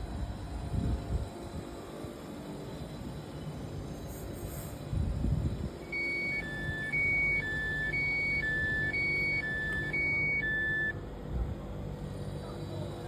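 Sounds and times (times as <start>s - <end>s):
two-tone door warning beeps: 5.8s - 11.1s.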